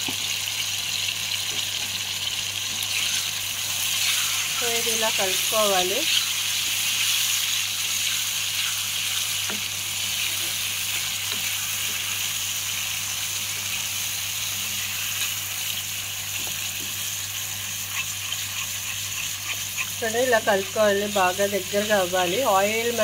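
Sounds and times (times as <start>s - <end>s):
paste sizzling in hot oil: 0.0s - 23.0s
spoon scraping pan: 16.4s - 21.2s.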